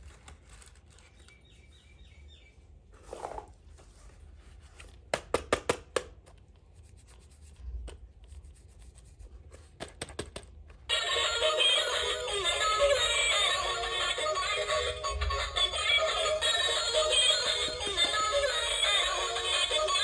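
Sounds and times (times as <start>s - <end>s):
music with synthetic singing: 10.9s - 20.0s.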